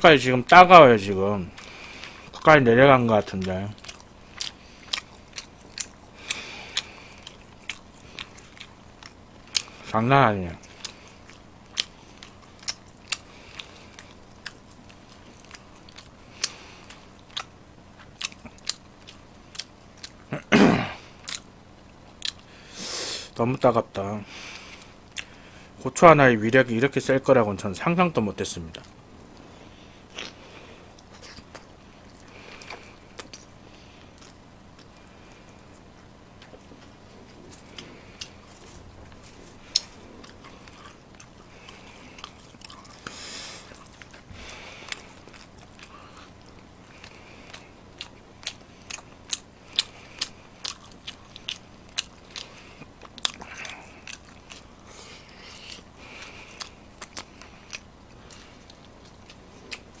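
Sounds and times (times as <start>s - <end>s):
man chewing food: 1.2s - 25.8s, 28.1s - 60.0s.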